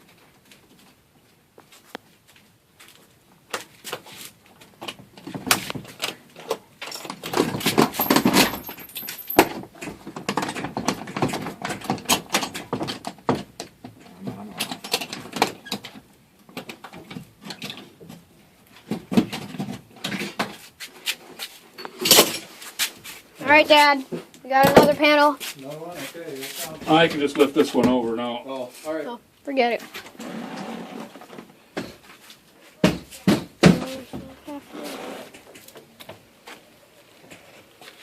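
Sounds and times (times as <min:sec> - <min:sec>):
metal clanks and knocks: 0:06.8 - 0:13.8.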